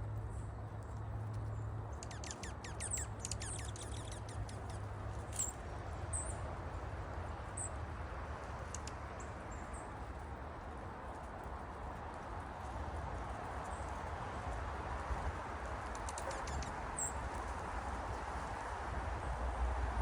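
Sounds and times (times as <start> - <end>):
songbirds chirping: 0.2 - 8.0.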